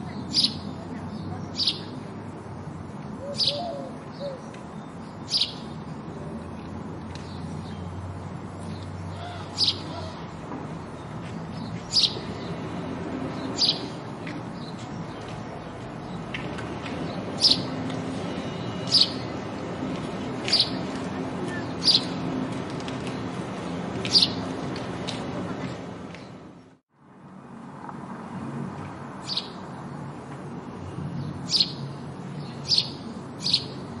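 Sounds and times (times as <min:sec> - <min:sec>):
sparrow chirping: 0:00.0 - 0:06.2, 0:08.6 - 0:22.5, 0:24.0 - 0:24.5, 0:29.2 - 0:30.0, 0:30.9 - 0:34.0
steady background noise: 0:00.0 - 0:34.0.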